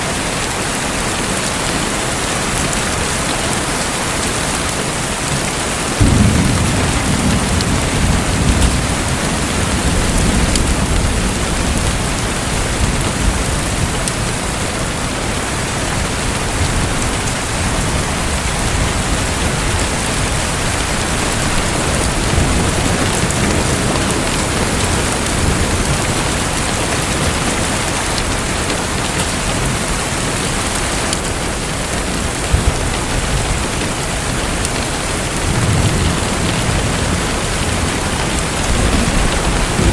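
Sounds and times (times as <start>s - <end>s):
low rumble: 38.4s - 39.9s.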